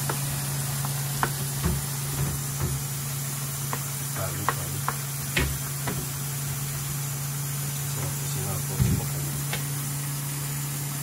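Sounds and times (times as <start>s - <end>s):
meat sizzling on a griddle: 0.0s - 11.0s
steady low hum: 0.0s - 11.0s.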